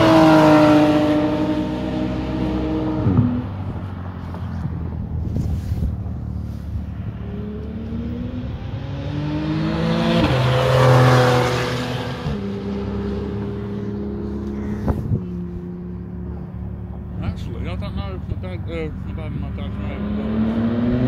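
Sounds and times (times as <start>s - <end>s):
race car accelerating past: 0.0s - 3.6s, 7.1s - 16.2s, 19.7s - 21.0s.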